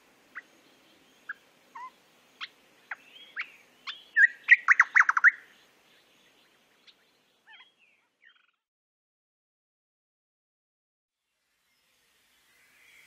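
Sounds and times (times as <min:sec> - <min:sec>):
birdsong chirps and whistles: 0:00.3 - 0:08.6.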